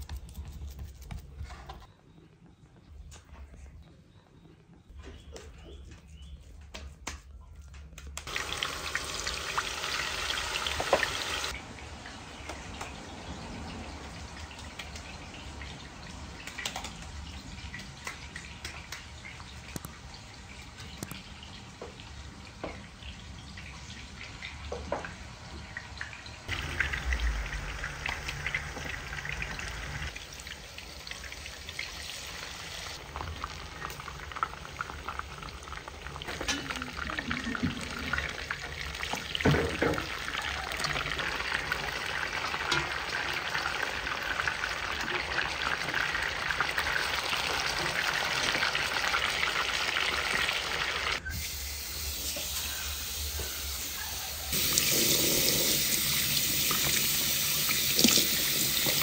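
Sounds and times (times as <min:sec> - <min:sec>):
food sizzling in hot oil: 0:08.3 - 0:11.6, 0:46.2 - 0:59.0.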